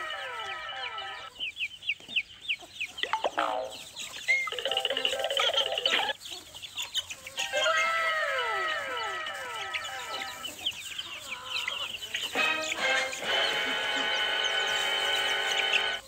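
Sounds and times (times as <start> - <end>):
chicks peeping and clucking: 0.0 - 16.0
overlapping falling tones: 3.0 - 6.2, 12.3 - 16.0.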